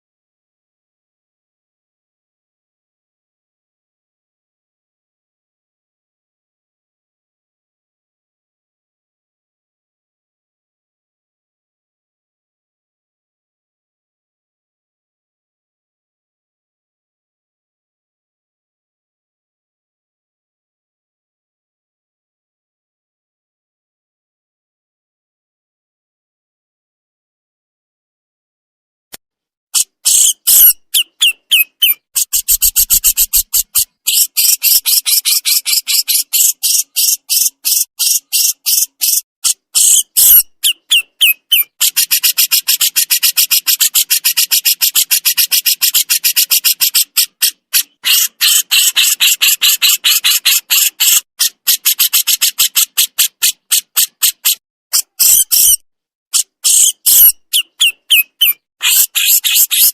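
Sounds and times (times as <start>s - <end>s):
songbird harsh chattering calls: 29.8s - 55.8s, 56.4s - 59.9s.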